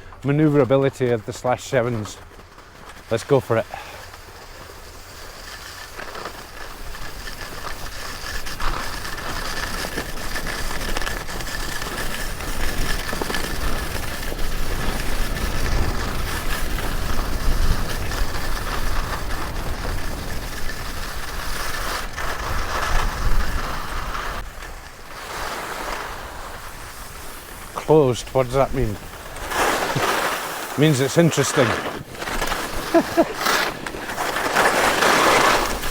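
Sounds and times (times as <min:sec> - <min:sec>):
skis scraping over snow: 0:00.0 - 0:35.9
wind on microphone: 0:13.8 - 0:24.5.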